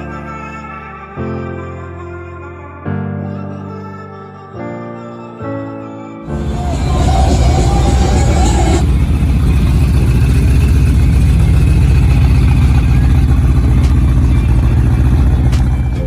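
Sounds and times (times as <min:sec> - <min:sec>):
car engine running loudly: 0:06.3 - 0:16.0.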